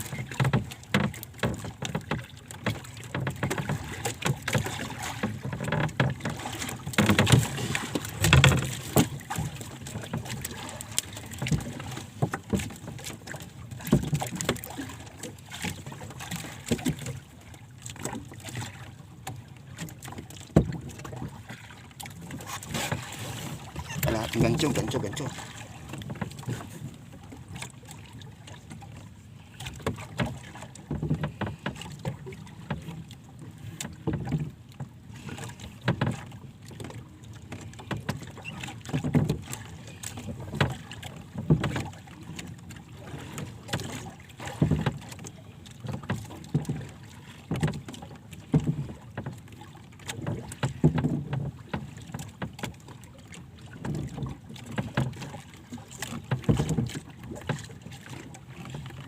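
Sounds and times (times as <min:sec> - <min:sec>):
water slapping against boat hull: 0:00.0 - 0:59.0
wind: 0:00.0 - 0:59.0
water washing: 0:22.5 - 0:26.9.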